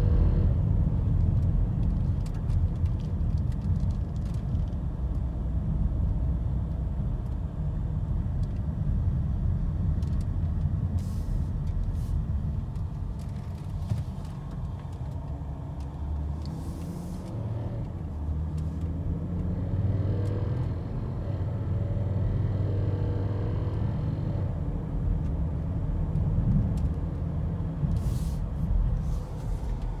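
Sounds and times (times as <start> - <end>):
road and engine rumble: 0.0 - 30.0.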